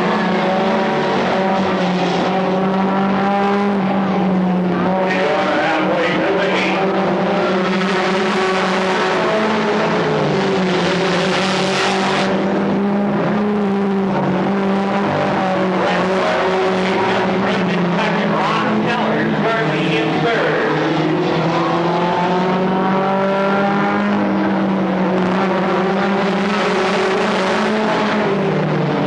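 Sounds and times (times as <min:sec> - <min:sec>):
stock car engines racing: 0:00.0 - 0:29.0
rush of noise: 0:03.8 - 0:22.7.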